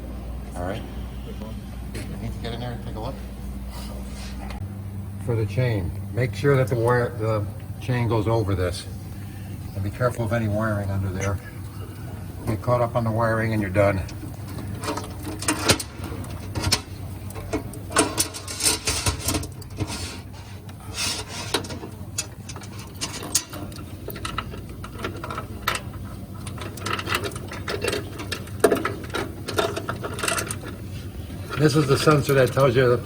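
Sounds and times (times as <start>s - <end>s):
chain links scraping metal: 14.8s - 20.3s, 20.9s - 30.8s.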